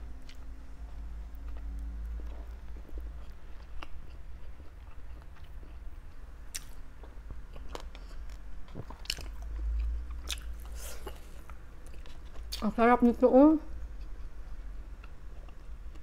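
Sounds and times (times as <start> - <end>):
steady low hum: 0.0 - 16.0
person biting and chewing: 6.5 - 6.8.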